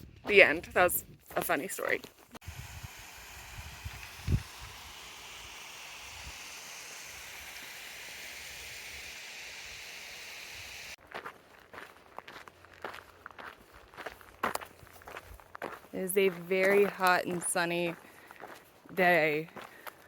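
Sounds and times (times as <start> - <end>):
outdoor ambient hiss: 2.0 - 11.0
wind buffeting on microphone: 2.4 - 4.8.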